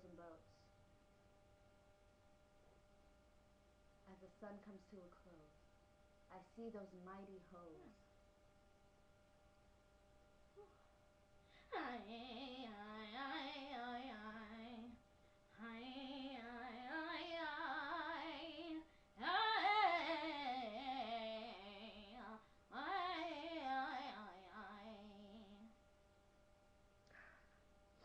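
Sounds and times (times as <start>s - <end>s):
woman singing wordless vowels: 11.7s - 25.7s.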